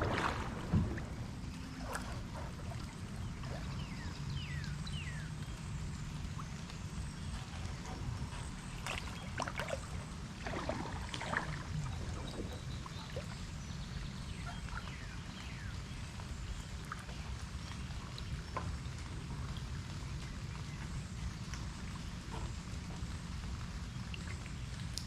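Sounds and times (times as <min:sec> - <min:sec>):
steady low rumble: 0:00.0 - 0:25.0
water splashing and dripping: 0:00.0 - 0:25.0.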